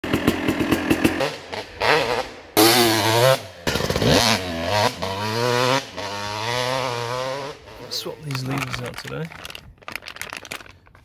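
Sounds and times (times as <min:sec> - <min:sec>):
two-stroke motorcycle engine revving: 0:00.0 - 0:08.2.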